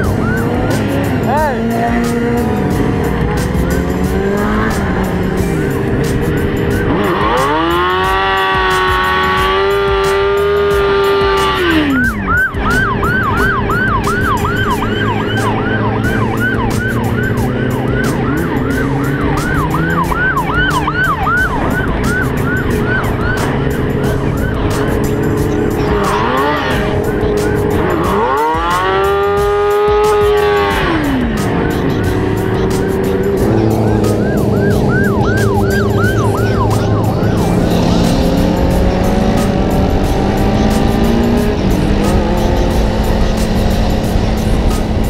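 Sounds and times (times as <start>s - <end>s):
police siren wailing and yelping: 0.0s - 2.4s, 6.7s - 39.5s
running vehicle noise: 0.0s - 45.0s.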